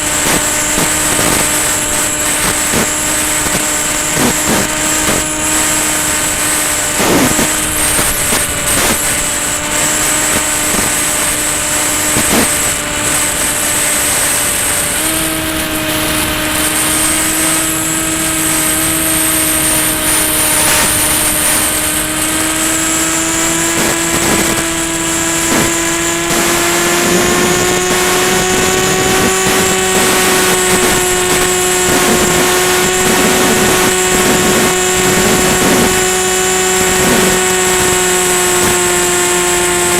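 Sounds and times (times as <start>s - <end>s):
high whine: 0.0s - 39.9s
rc plane motor and propeller: 0.0s - 39.9s
rushing noise: 0.0s - 39.9s.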